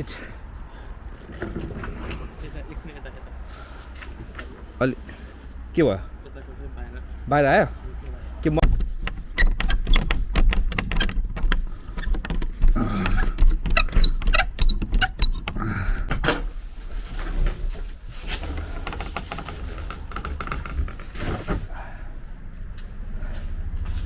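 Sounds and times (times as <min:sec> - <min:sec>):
irregular knocks and clatter: 0:01.2 - 0:02.4, 0:08.6 - 0:16.4, 0:17.0 - 0:21.7
short squeaks: 0:09.2 - 0:15.4.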